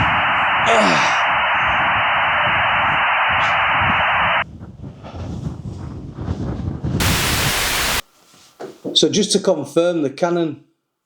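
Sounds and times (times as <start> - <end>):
static-like hiss: 0.0 - 4.4, 7.0 - 8.2
wind rumble on microphone: 0.0 - 7.6.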